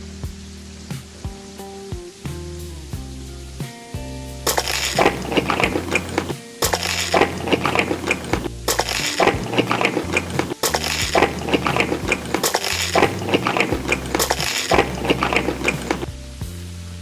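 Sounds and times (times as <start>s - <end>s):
crunching while eating: 4.5s - 16.1s.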